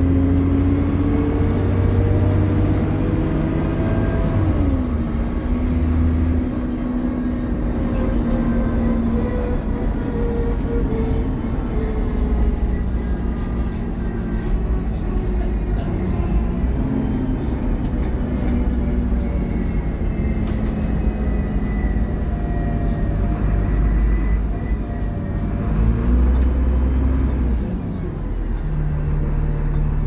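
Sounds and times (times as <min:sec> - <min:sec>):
bus engine drone: 0:00.0 - 0:30.0.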